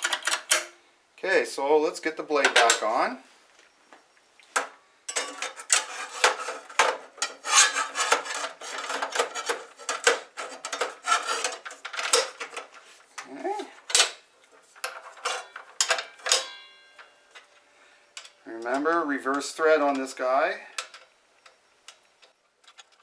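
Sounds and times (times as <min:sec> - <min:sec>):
metal parts clinking and rattling: 0:05.1 - 0:14.2, 0:14.8 - 0:17.5, 0:22.6 - 0:23.0.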